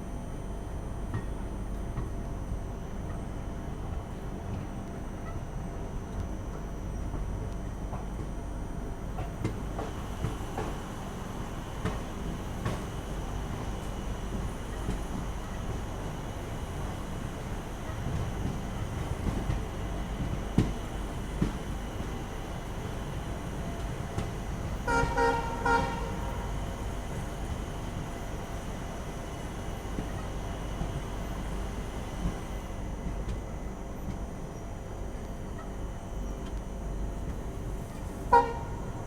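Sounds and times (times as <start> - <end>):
train rumbling: 0.0 - 39.0
train horn pulses: 24.7 - 27.3, 38.0 - 39.0.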